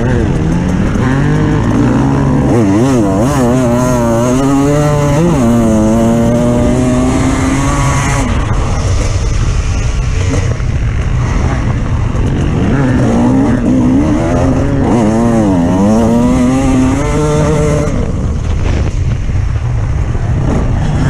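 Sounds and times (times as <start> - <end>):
off-road vehicle engine revving: 0.0 - 9.1, 11.2 - 18.2.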